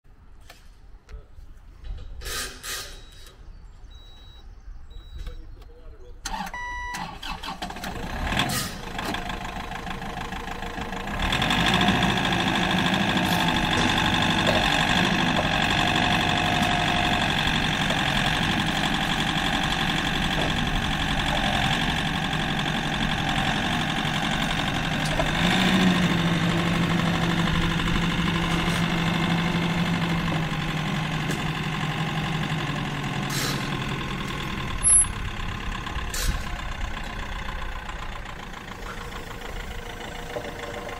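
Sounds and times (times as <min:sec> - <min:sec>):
beep: 0:03.0 - 0:03.3, 0:03.9 - 0:07.1
diesel engine idling: 0:03.9 - 0:40.9.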